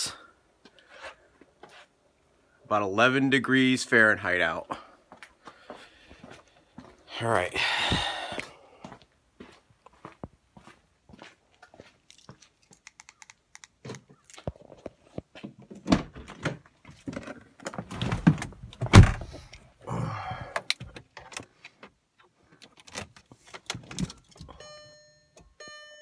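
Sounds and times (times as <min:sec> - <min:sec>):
car door shutting: 0:18.2 - 0:19.4.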